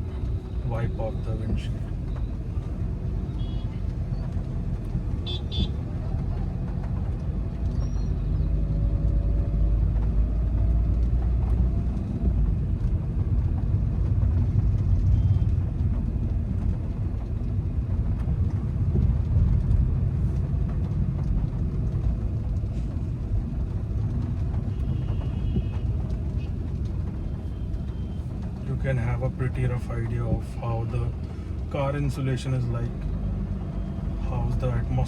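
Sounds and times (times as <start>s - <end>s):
car engine running: 0.0s - 8.5s
tyres rumbling on wet road: 0.0s - 35.0s.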